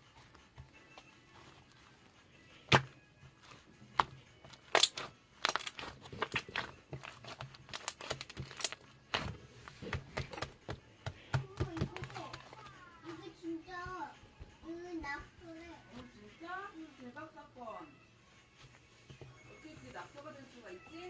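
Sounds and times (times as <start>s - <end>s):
crinkling and rustling: 0.0s - 21.0s.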